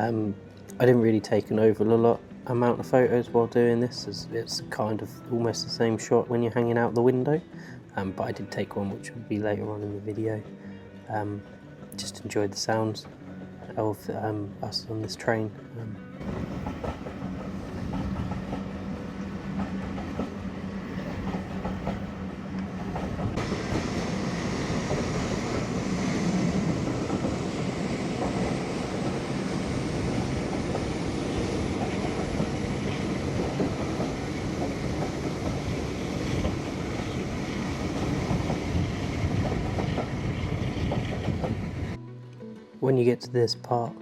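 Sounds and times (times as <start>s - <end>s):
rumbling rail noise: 16.2s - 42.0s.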